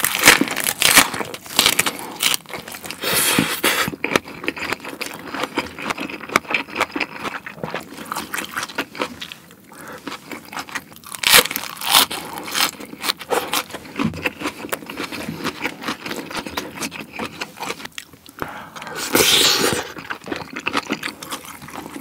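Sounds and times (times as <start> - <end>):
crunching cabbage leaf: 0.0 - 18.1
chewing with wet mouth clicks: 19.9 - 22.0.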